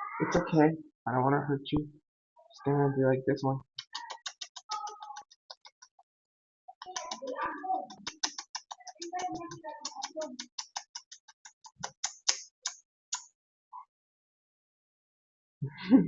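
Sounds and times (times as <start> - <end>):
rapid sharp clicks: 3.8 - 6.0, 6.8 - 13.3.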